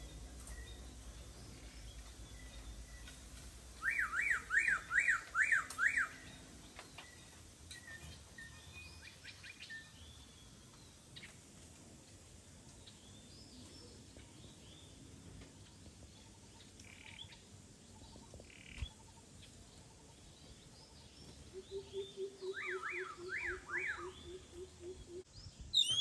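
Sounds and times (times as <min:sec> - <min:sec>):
faint bird chirps: 0:00.0 - 0:03.2, 0:15.7 - 0:26.0
bird whistling sliding notes: 0:25.8 - 0:26.0.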